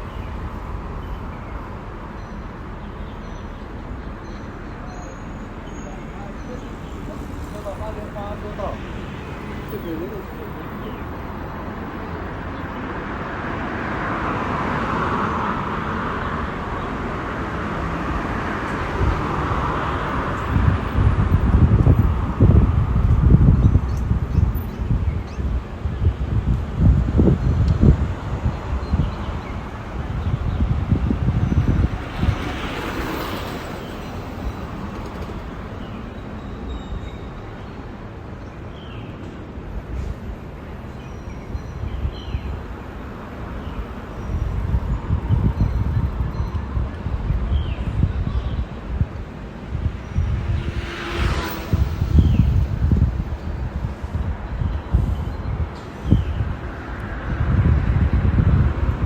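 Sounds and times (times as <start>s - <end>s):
road traffic rushing: 0.0s - 59.0s
wind buffeting microphone: 5.4s - 59.0s
rushing noise: 42.6s - 59.0s.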